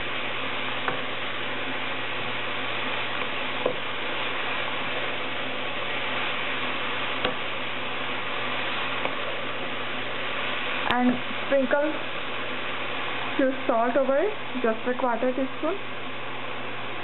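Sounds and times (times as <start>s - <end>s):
leaves sizzling in hot oil: 0.0s - 17.0s.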